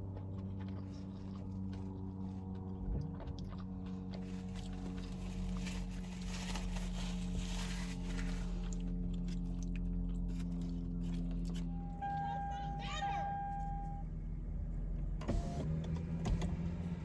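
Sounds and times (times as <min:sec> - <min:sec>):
chewing and biting food: 0:00.0 - 0:12.0
steady low hum: 0:00.0 - 0:17.0.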